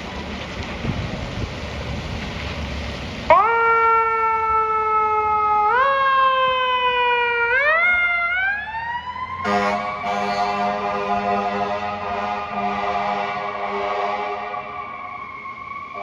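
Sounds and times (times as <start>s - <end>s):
fire engine siren wailing: 1.7s - 16.0s
air horns blasting: 9.4s - 14.9s.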